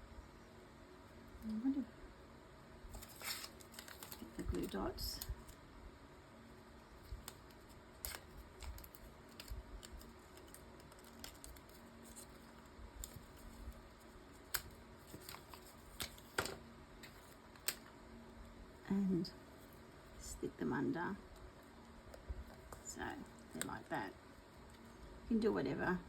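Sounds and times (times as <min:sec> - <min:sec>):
paper rustling: 0:02.9 - 0:05.6, 0:07.0 - 0:17.9.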